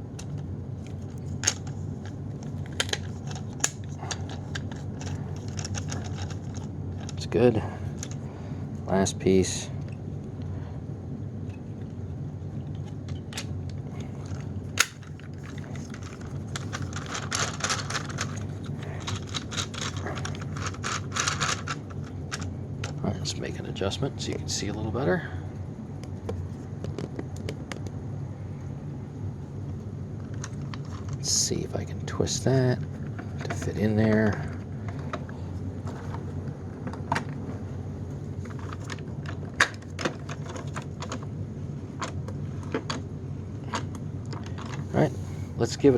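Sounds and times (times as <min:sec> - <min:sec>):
plastic clicks and rattles: 0:02.4 - 0:07.2, 0:12.8 - 0:23.0.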